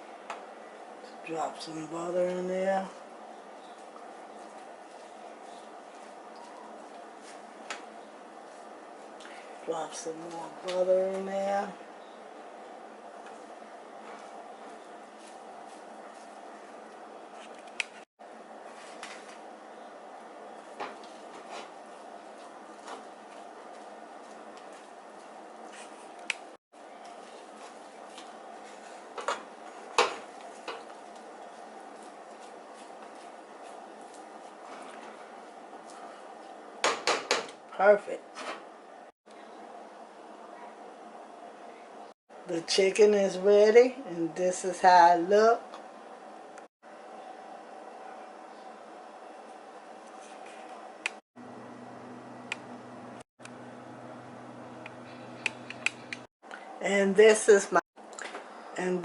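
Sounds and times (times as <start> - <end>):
background hum: 38.7 - 59.0.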